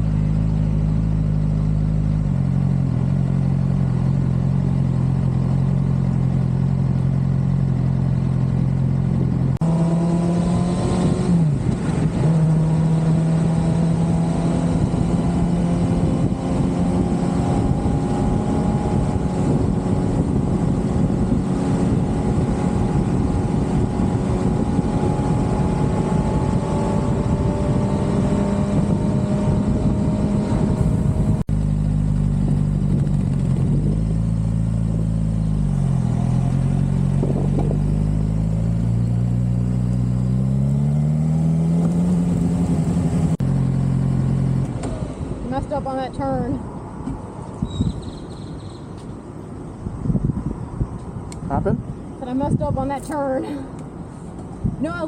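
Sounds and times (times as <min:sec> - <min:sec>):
motorcycle engine drone: 0:00.0 - 0:55.0
wind rush: 0:09.7 - 0:31.5, 0:49.5 - 0:55.0.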